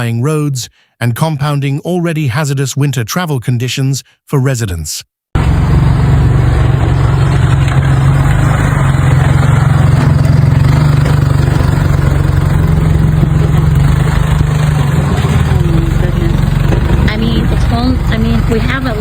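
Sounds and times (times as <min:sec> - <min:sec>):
engine running low hum: 0:05.4 - 0:19.0.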